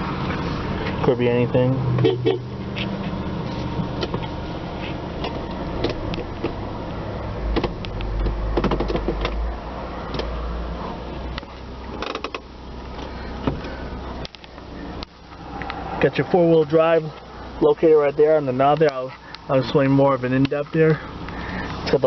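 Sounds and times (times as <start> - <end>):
car engine idling: 0.0 - 22.0
handling clicks and knocks: 7.5 - 9.4.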